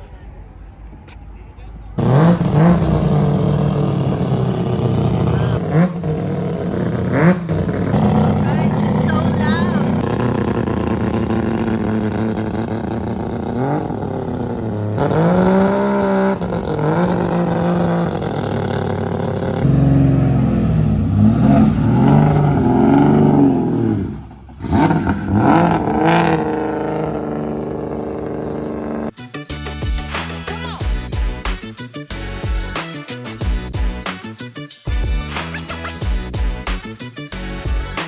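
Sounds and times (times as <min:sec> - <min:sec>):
car engine revving: 0:01.9 - 0:29.2.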